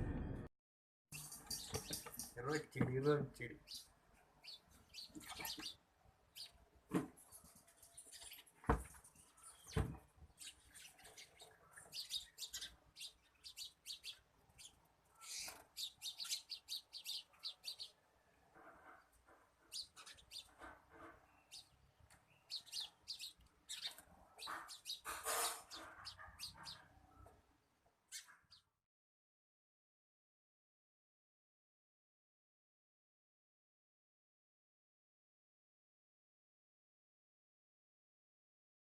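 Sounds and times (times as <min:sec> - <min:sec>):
birds chirping: 0:01.2 - 0:28.8.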